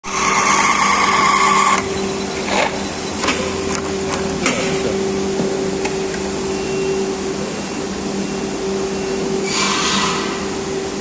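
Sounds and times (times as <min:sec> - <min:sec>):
machine motor hum: 0:00.1 - 0:07.5
high whine: 0:00.1 - 0:09.5.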